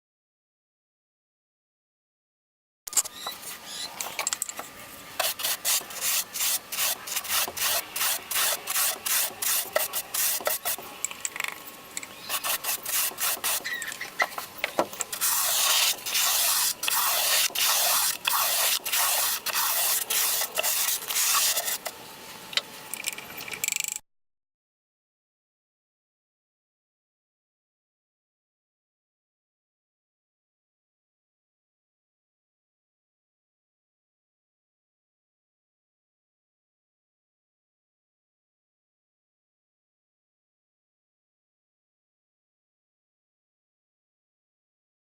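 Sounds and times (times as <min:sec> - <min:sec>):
sandpaper rubbing wood: 0:05.2 - 0:10.8, 0:12.3 - 0:14.4, 0:15.1 - 0:21.9.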